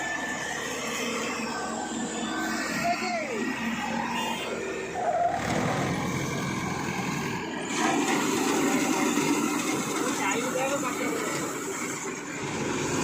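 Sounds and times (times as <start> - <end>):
harvesting machine engine running: 5.3 - 13.0.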